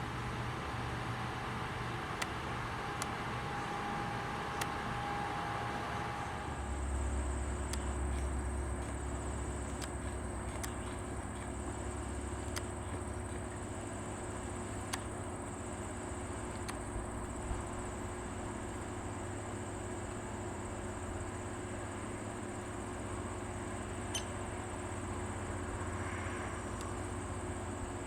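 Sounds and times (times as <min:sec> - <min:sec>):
sharp clicks: 0:02.0 - 0:05.1, 0:07.6 - 0:13.7, 0:14.3 - 0:15.3, 0:16.4 - 0:17.0.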